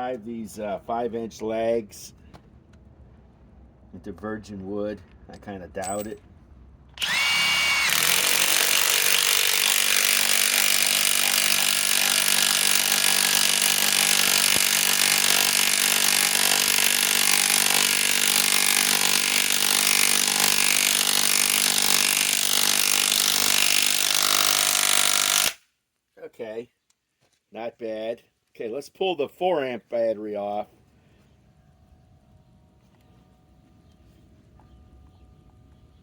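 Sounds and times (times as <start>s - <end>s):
impact wrench hammering: 7.8s - 25.6s.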